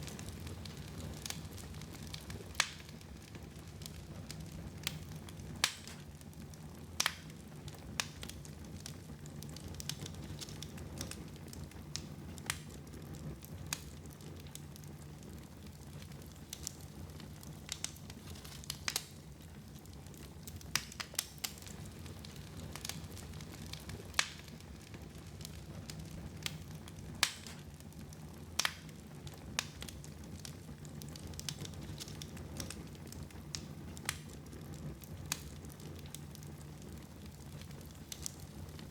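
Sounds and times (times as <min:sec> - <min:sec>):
fire crackling and popping: 0:00.0 - 0:38.9
low fire rumble: 0:00.0 - 0:38.9.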